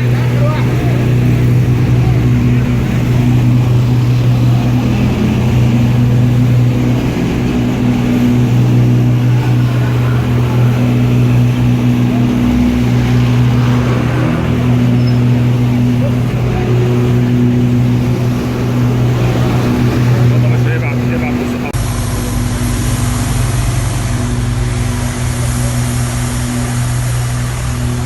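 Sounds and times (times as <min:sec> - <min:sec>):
large engine droning: 0:00.0 - 0:28.0.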